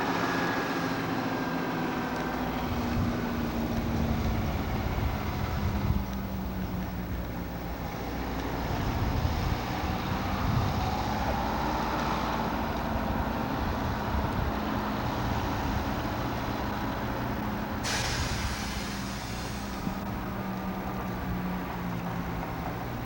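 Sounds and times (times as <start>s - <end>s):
bus engine running: 0.0s - 23.0s
burst of hiss: 17.8s - 20.0s.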